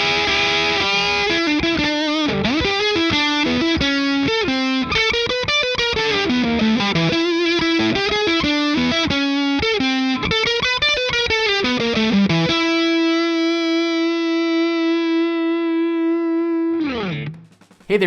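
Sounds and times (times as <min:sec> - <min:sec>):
distorted electric guitar: 0:00.0 - 0:10.2.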